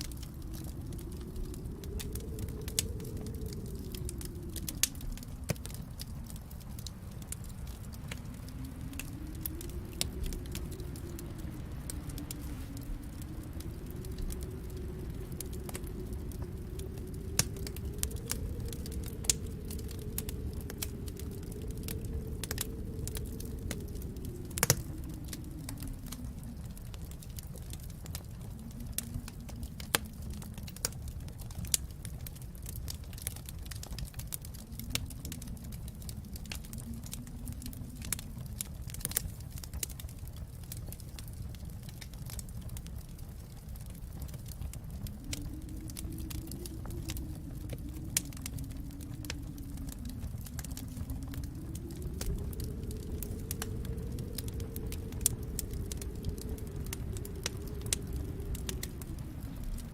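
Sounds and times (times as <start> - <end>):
howling wind: 0.0 - 59.9
wood fire crackling: 0.0 - 59.9.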